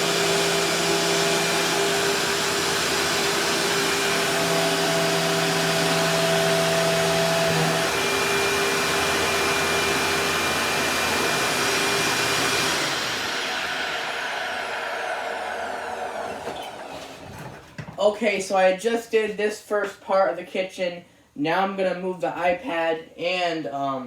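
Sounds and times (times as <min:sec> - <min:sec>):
motor winding down whine: 0:00.0 - 0:17.2
shop vac running: 0:00.0 - 0:18.0.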